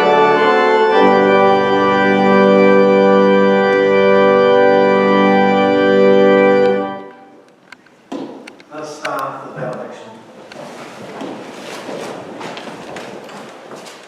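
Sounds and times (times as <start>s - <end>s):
church organ playing: 0.0s - 7.5s.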